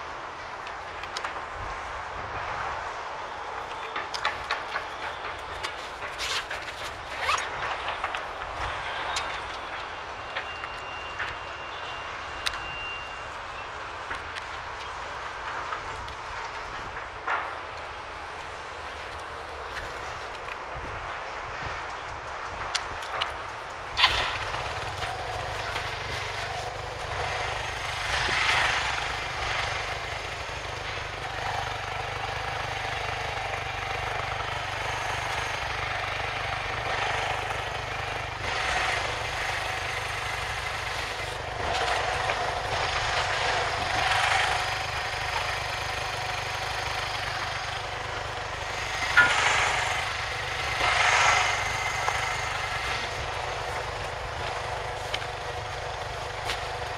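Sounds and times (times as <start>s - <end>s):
motorcycle engine revving: 23.9s - 56.9s.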